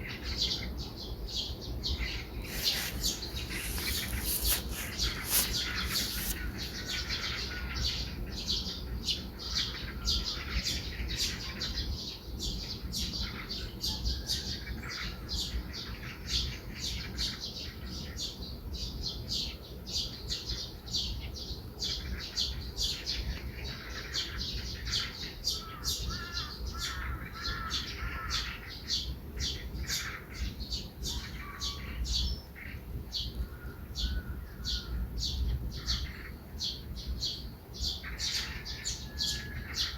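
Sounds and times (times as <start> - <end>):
lower warbling bird calls: 0.0 - 11.8, 24.2 - 39.9
high bird chirps: 2.0 - 7.3.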